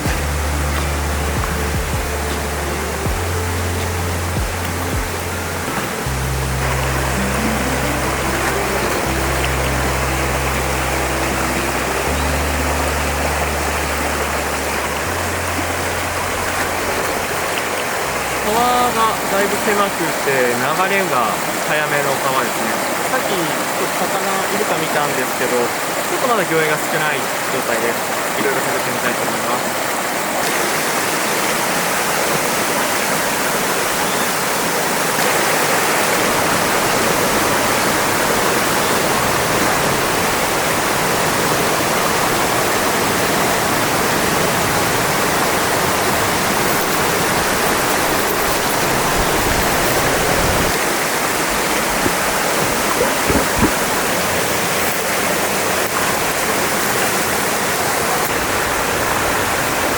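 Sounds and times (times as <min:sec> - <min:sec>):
mountain stream rushing: 0:00.0 - 0:59.9
soft bumps: 0:51.9 - 0:54.0.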